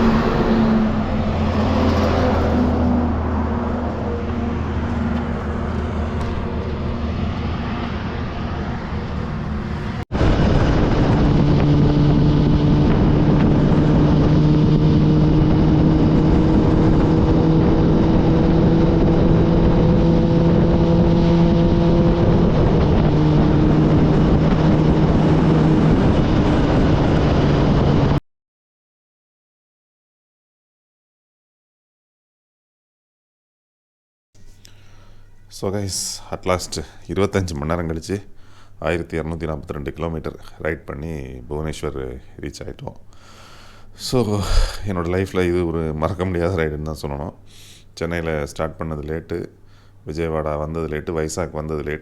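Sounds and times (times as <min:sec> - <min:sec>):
wind rush: 0:00.0 - 0:28.2
motorcycle engine running: 0:10.9 - 0:27.0.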